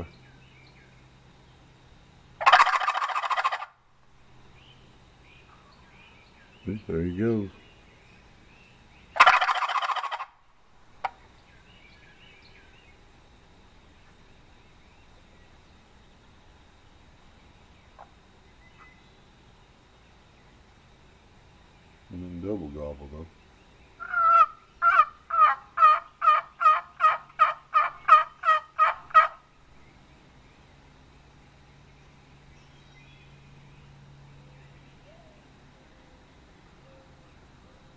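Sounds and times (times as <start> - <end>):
faint songbirds chirping: 0.0 - 37.9
turkey call rattling gobble: 2.4 - 3.8, 9.2 - 10.4, 24.0 - 29.4.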